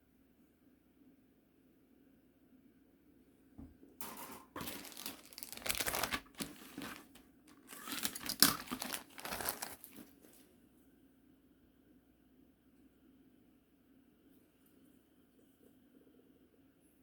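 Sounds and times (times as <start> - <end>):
plastic packaging crinkling: 4.5 - 10.4.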